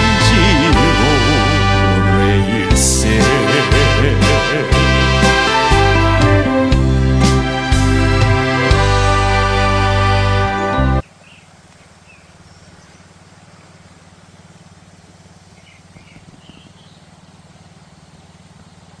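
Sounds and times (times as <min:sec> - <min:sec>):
background music: 0:00.0 - 0:11.0
faint bird chirps: 0:10.7 - 0:18.8.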